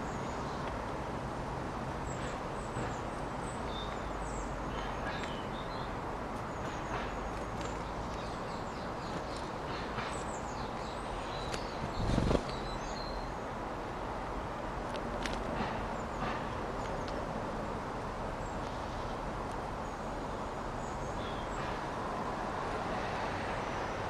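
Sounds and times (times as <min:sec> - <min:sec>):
distant city traffic: 0:00.0 - 0:24.0
birds chirping: 0:02.0 - 0:13.6, 0:19.8 - 0:22.0.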